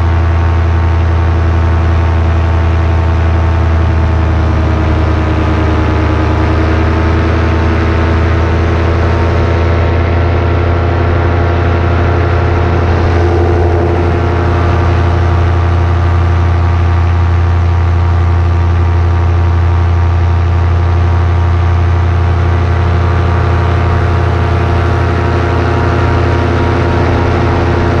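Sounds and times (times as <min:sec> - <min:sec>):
paramotor engine droning: 0:00.0 - 0:28.0.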